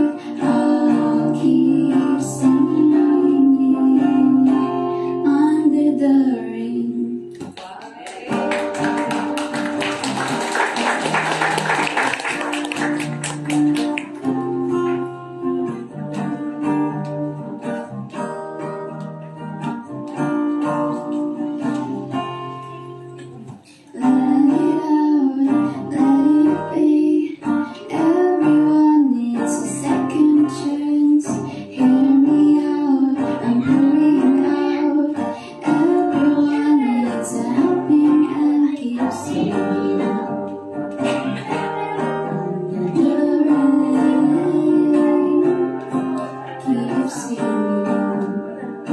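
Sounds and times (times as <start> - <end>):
person singing: 0.0 - 7.4, 21.0 - 48.9
acoustic guitar strumming: 0.0 - 7.5, 8.2 - 48.9.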